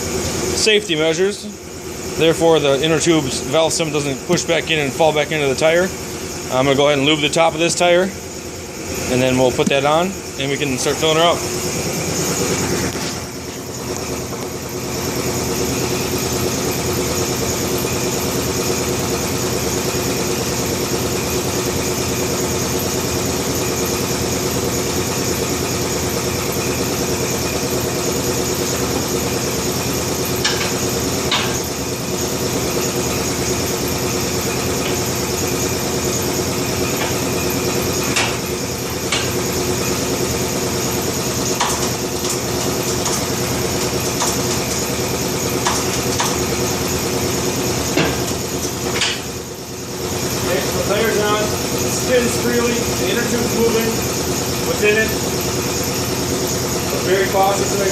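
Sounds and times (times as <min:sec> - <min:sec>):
motor droning: 0:00.0 - 0:57.9
sharp clicks and knocks: 0:30.4 - 0:31.6, 0:38.1 - 0:38.5, 0:39.1 - 0:39.4, 0:41.6 - 0:43.3, 0:44.2 - 0:44.8, 0:45.6 - 0:46.4, 0:47.9 - 0:49.3.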